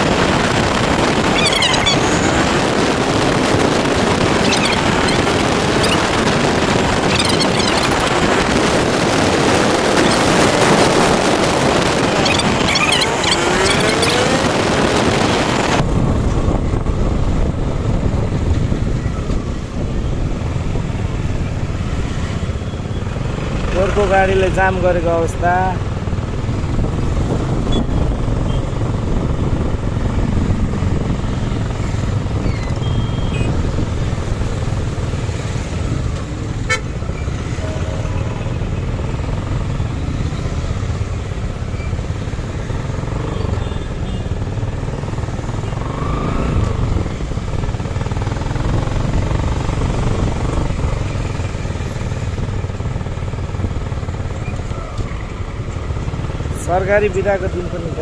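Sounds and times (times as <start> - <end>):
rumble of traffic engines: 0.0 - 58.0.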